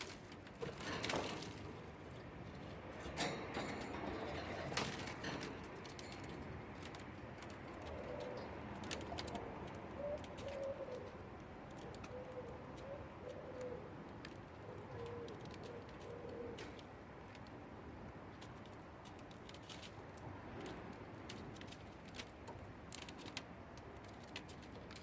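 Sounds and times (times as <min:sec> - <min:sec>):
bird cooing: 0:07.7 - 0:16.8.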